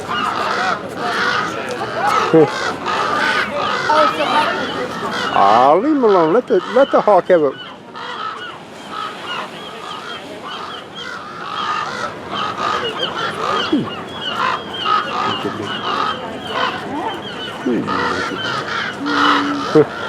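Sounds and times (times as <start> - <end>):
seagulls squawking: 0.0 - 20.0.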